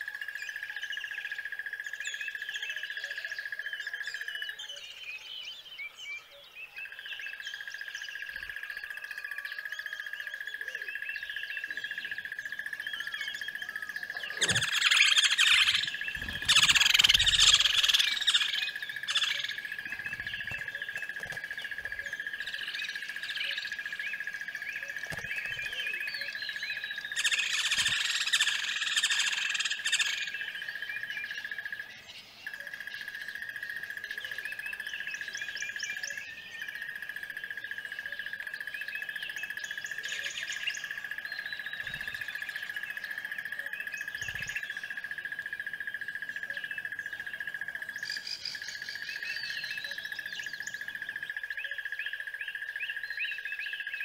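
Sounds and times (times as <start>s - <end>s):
birds chirping: 0.4s - 54.0s.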